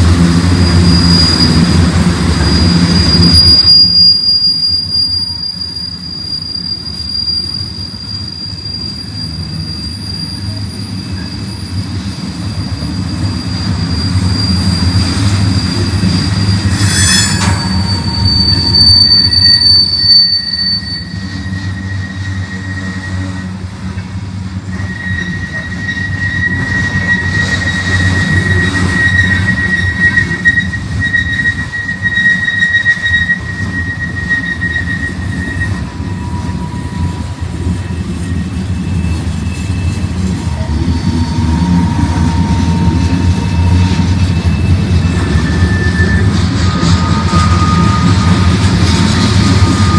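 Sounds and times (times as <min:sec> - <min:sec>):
freight train rumbling past: 0:00.0 - 0:49.9
steel wheels squealing on rails: 0:00.0 - 0:49.9
sharp metal clank: 0:16.8 - 0:18.1.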